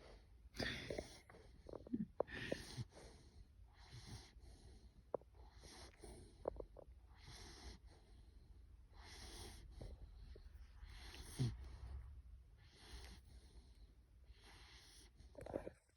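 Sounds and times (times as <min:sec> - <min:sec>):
puppy snoring softly: 0:00.0 - 0:15.9.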